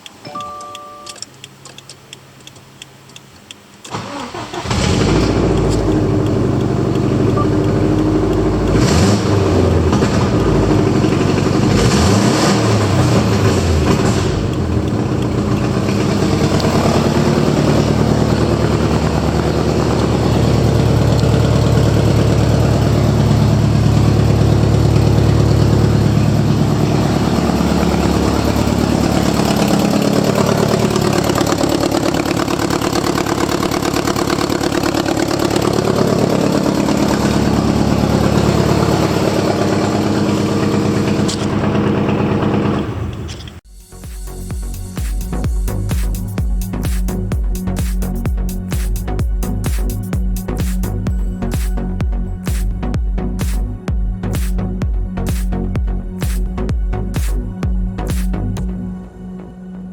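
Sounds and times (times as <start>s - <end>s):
car engine cranking and revving: 1.3s - 59.4s.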